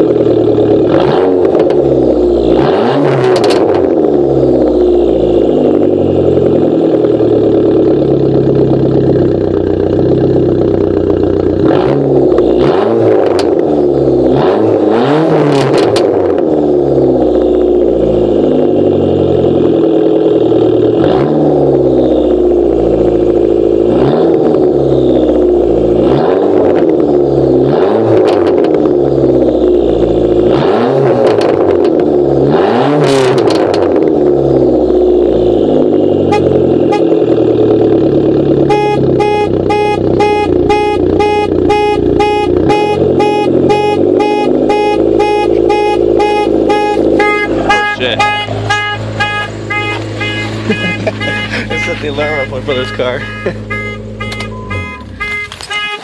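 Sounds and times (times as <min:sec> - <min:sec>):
car engine revving: 0:00.0 - 0:56.0
car alarm pulsing: 0:21.1 - 0:23.6, 0:35.0 - 0:37.7, 0:38.4 - 0:56.0.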